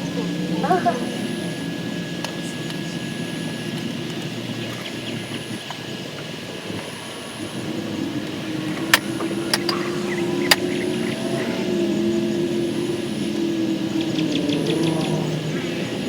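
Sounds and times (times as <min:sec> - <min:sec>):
engine droning hum: 0:00.0 - 0:16.0
sharp clicks: 0:08.7 - 0:10.8.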